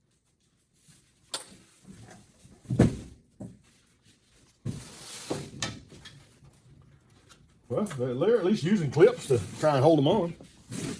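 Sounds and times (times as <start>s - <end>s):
scraping and rustling: 8.4s - 10.9s.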